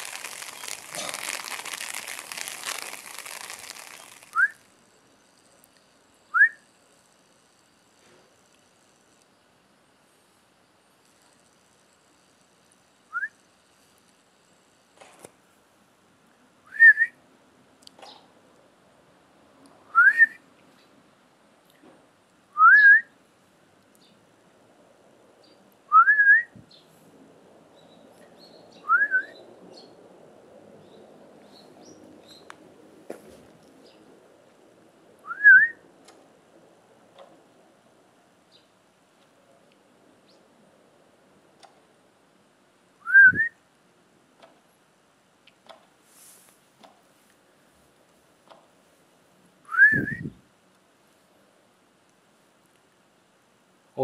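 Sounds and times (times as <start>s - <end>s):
person whistling rising calls: 0.0s - 4.6s, 6.3s - 6.6s, 16.7s - 17.2s, 19.9s - 20.4s, 22.6s - 23.1s, 25.9s - 26.6s, 28.8s - 29.4s, 35.2s - 35.8s, 43.0s - 43.6s, 49.7s - 50.4s
short rising whistle: 4.1s - 4.6s, 43.0s - 43.6s, 49.7s - 50.4s.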